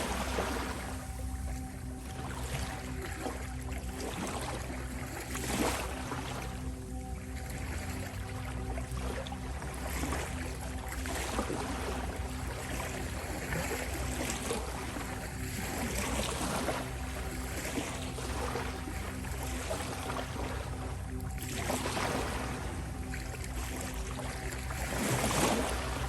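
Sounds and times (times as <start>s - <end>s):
sustained drone of held tones: 0.0s - 26.0s
ocean waves washing: 9.6s - 26.0s.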